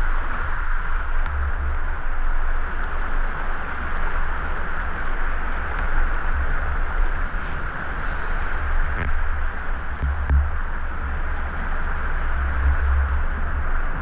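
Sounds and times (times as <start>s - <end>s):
low rumble: 8.6s - 14.0s.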